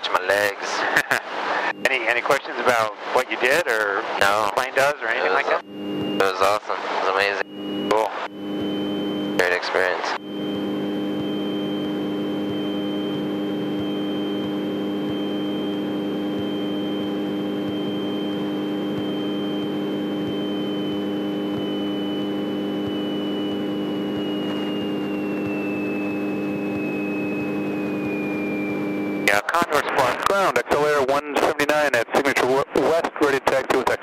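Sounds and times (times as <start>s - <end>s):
thin high whine: 0.0s - 34.0s
airplane piston engine running: 7.4s - 29.4s.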